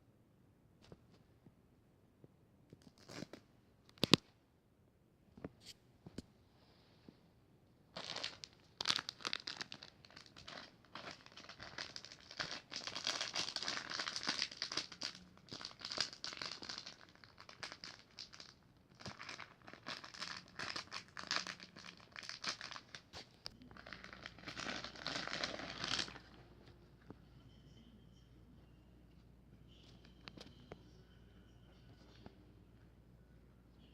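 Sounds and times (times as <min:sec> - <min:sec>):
packaging crinkling: 0:08.0 - 0:26.4.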